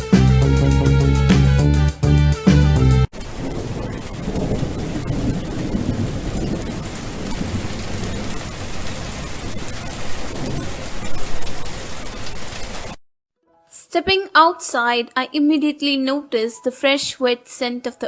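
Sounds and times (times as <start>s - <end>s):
low rumble of thunder: 3.1s - 12.6s
heavy rain falling: 3.1s - 13.0s.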